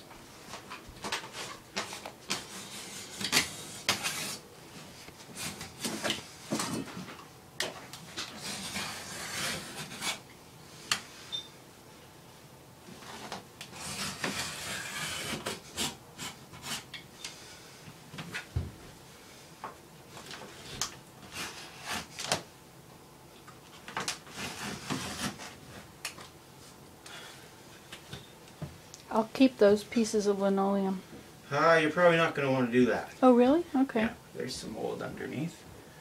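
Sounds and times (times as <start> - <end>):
linoleum rubbing and scraping: 0.4 - 7.1, 8.0 - 10.2, 12.9 - 19.5, 20.1 - 22.2, 24.0 - 26.0.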